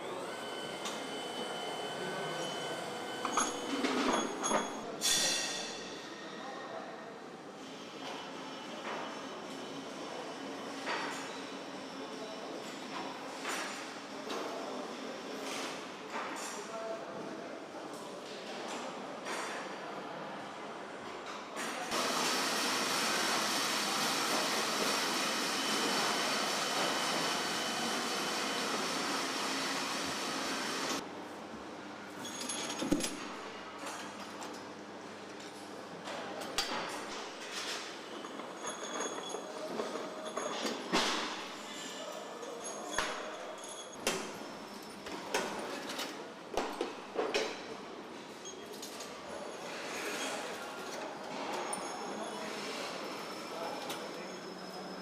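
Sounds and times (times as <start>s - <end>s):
factory background hum: 0.0s - 16.3s, 19.3s - 39.0s.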